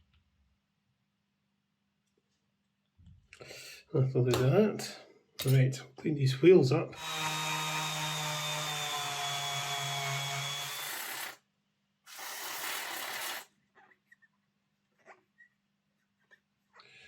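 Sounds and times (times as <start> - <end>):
electric rotary tool whining: 7.0 - 11.4, 12.1 - 13.5.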